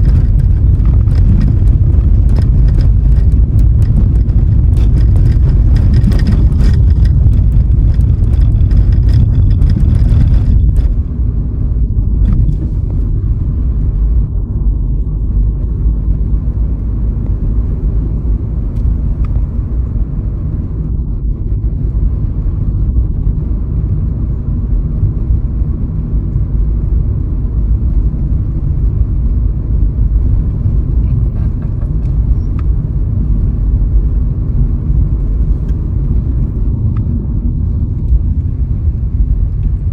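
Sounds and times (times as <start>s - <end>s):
clicks and rattles: 0.0s - 11.1s, 12.2s - 12.8s, 30.2s - 32.8s
car road and wind rumble: 0.0s - 39.9s.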